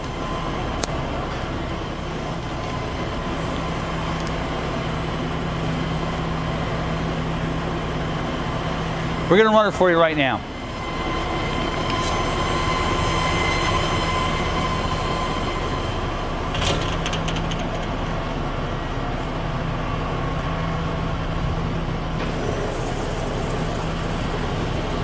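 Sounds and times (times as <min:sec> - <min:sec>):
machine humming with faint whine: 0:00.0 - 0:25.0
metallic clatter: 0:16.4 - 0:18.2.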